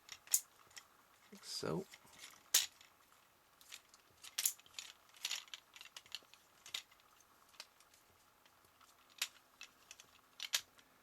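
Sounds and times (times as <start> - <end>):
plastic parts clicking: 3.6 - 10.8.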